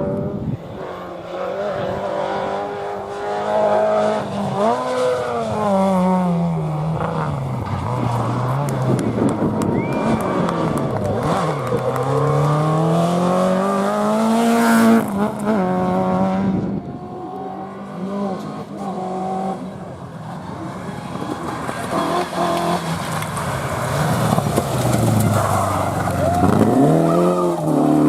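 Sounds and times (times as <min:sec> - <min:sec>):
rally car engine accelerating: 0:00.0 - 0:28.0.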